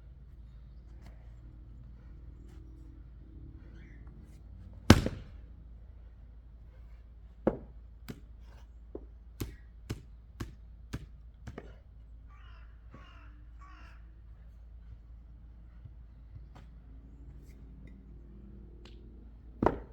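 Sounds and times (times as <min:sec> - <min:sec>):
axe chopping wood: 0:04.9 - 0:05.5, 0:07.5 - 0:08.3, 0:09.4 - 0:11.8, 0:19.6 - 0:19.9
bird calling: 0:12.3 - 0:14.2.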